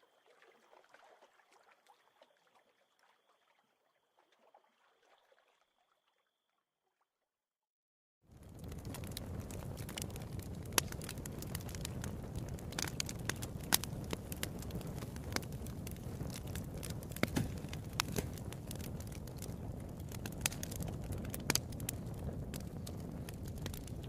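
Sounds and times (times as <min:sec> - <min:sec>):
crackles and sharp pops: 0:08.3 - 0:24.0.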